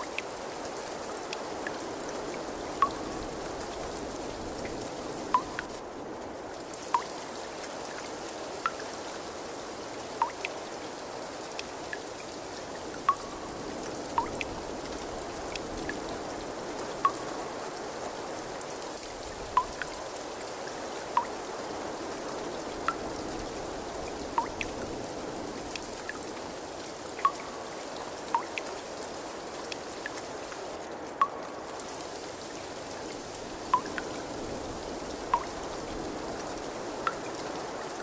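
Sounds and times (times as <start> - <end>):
water drips plinking: 0.0 - 5.8, 6.6 - 9.0, 10.1 - 10.8, 11.5 - 16.1, 17.0 - 17.4, 19.5 - 21.5, 22.8 - 23.2, 24.0 - 24.9, 27.1 - 34.3, 35.1 - 38.0
water trickling: 0.0 - 38.0.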